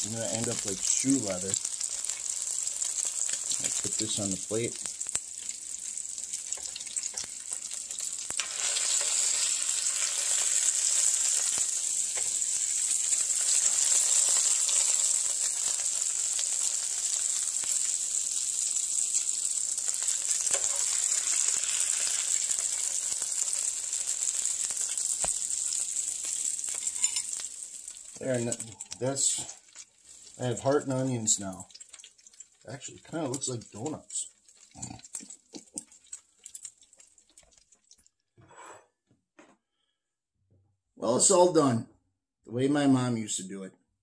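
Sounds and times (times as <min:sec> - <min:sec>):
meat sizzling in a frying pan: 0:00.0 - 0:38.0.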